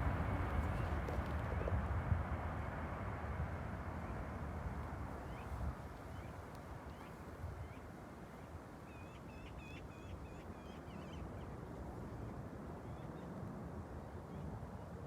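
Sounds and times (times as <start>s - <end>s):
distant jet engine rumble: 0.0s - 6.9s.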